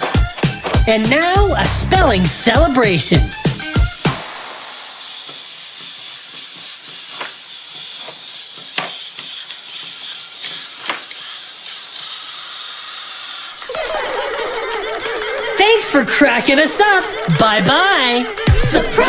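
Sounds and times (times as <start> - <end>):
steady hissing noise: 0.0 - 13.7.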